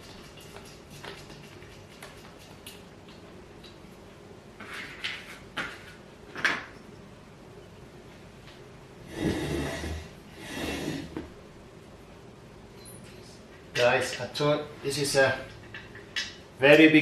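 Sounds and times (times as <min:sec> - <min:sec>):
wood scraping: 0:09.1 - 0:11.3.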